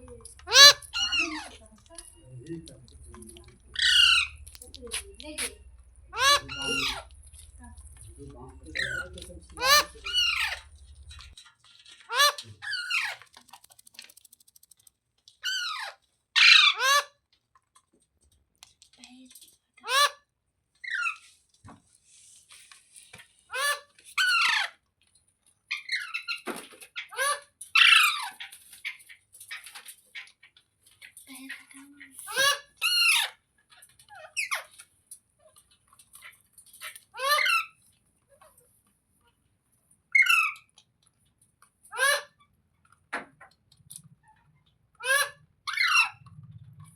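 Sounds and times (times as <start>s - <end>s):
parrot squawking: 0.0s - 11.4s, 12.1s - 13.2s, 15.4s - 17.1s, 19.8s - 20.2s, 23.5s - 24.8s, 32.2s - 33.4s, 36.2s - 37.8s, 40.1s - 40.7s, 41.9s - 42.4s, 45.0s - 46.3s.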